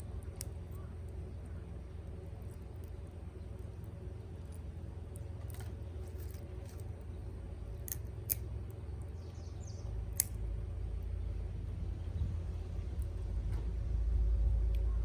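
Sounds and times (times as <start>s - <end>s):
low rumble: 9.0s - 15.0s.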